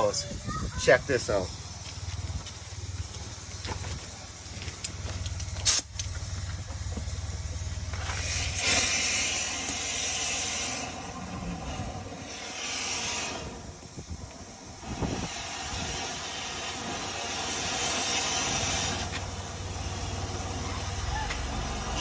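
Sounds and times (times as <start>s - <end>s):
low motor hum: 1.5s - 12.6s, 13.2s - 22.0s
rushing air: 7.9s - 22.0s.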